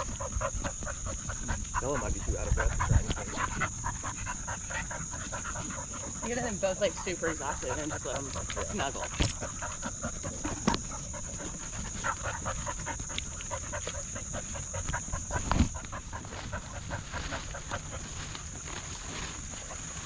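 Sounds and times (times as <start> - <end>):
dog panting hard: 0.0 - 18.6
crickets droning: 0.0 - 20.0.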